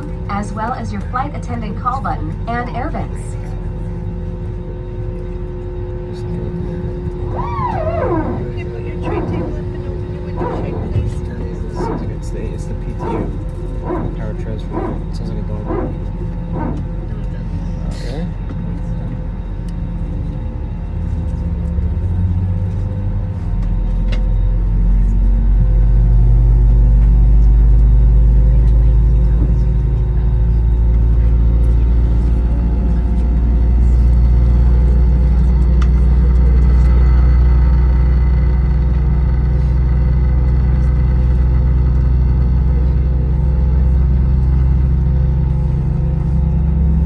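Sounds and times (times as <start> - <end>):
jet engines rumbling in cabin: 0.0 - 47.0
steady tones: 7.2 - 17.2.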